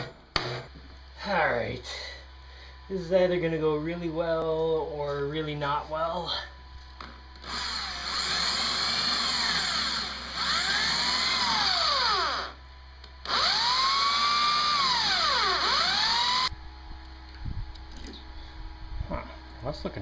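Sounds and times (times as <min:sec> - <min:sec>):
electric drill drilling: 0:07.4 - 0:12.6, 0:13.2 - 0:16.5.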